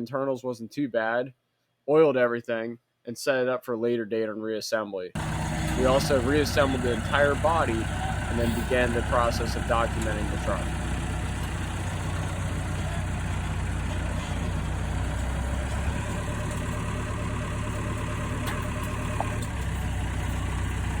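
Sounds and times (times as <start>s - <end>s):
heavy engine idling: 5.2s - 21.0s.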